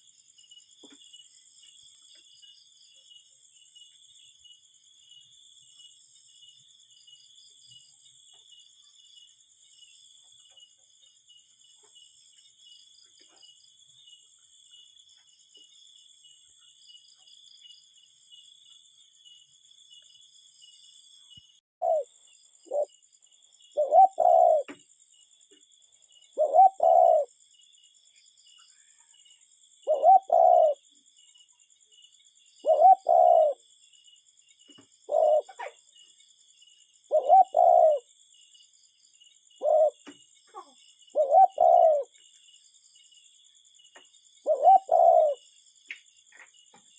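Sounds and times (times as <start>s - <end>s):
cuckoo calling: 21.8s - 22.1s, 22.7s - 22.9s, 23.7s - 24.8s, 26.4s - 27.3s, 29.9s - 30.8s, 32.6s - 33.6s, 35.0s - 35.7s, 37.1s - 38.1s, 39.6s - 42.1s, 44.4s - 45.4s.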